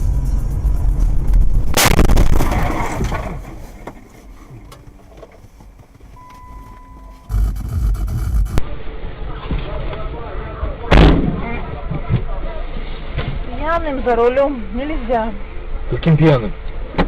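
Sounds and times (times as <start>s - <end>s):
road and engine rumble: 0.0s - 17.0s
car crash: 1.4s - 5.4s
debris crunching and rattling: 1.7s - 5.8s
steady electronic beep: 6.2s - 8.6s.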